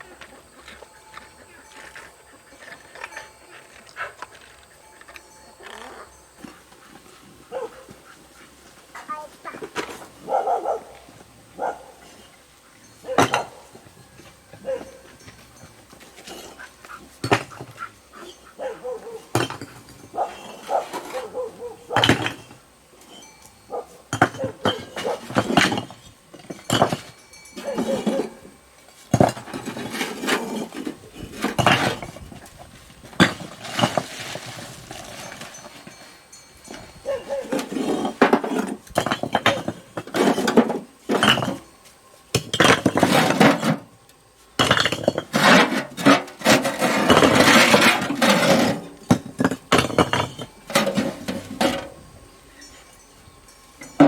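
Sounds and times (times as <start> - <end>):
hard objects clattering: 12.0 - 18.4, 19.3 - 44.0, 44.6 - 53.0, 53.7 - 54.0
scraping: 13.1 - 41.8, 42.4 - 43.9, 44.6 - 53.0.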